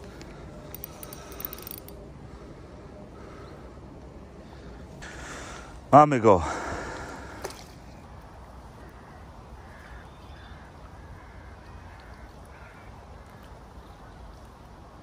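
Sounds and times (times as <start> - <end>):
steady low rumble: 0.0 - 9.6
bird calling: 8.7 - 14.2.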